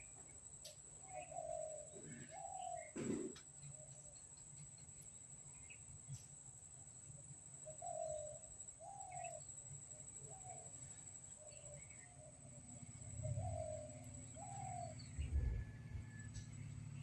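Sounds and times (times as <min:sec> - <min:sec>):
steady high-pitched whine: 0:00.0 - 0:17.0
low cooing bird calls: 0:01.0 - 0:04.6, 0:07.6 - 0:17.0.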